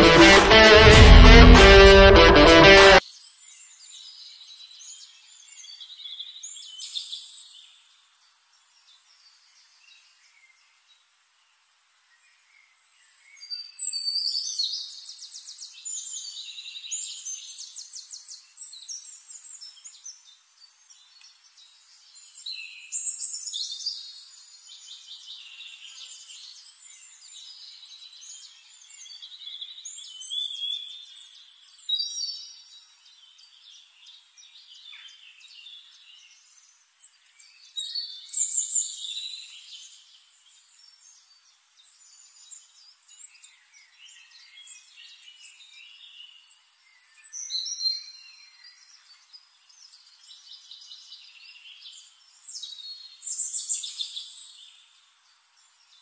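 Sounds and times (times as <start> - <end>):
songbirds chirping and trilling: 13.4 - 56.0.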